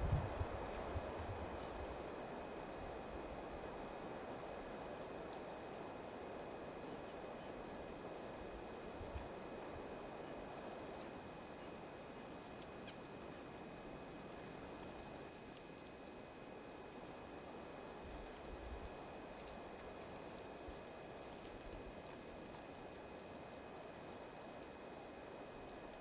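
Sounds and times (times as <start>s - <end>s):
steady outdoor hiss: 0.0s - 26.0s.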